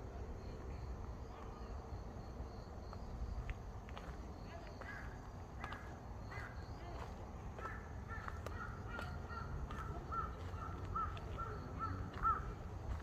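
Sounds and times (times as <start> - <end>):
bird calling: 4.8 - 7.0, 7.6 - 12.7.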